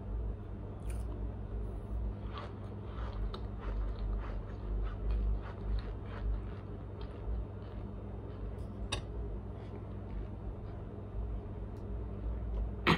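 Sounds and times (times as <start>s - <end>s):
soft chewing bites: 2.0s - 12.7s.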